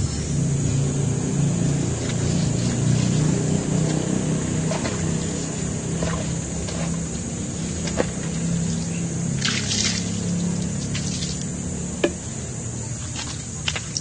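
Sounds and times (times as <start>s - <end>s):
steady low hum: 0.0s - 14.0s
water splashing and trickling: 1.5s - 11.7s, 12.9s - 14.0s.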